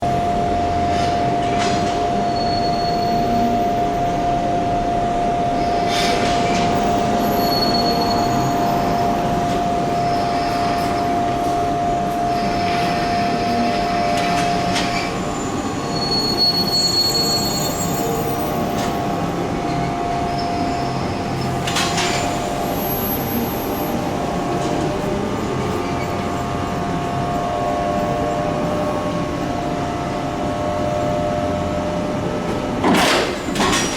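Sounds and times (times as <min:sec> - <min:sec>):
train clanks: 0:00.0 - 0:04.2, 0:05.5 - 0:33.9
electric train whine: 0:00.0 - 0:33.9
brake squeals: 0:02.0 - 0:03.8, 0:05.7 - 0:11.4, 0:12.3 - 0:29.6
wheels squealing: 0:12.4 - 0:27.0.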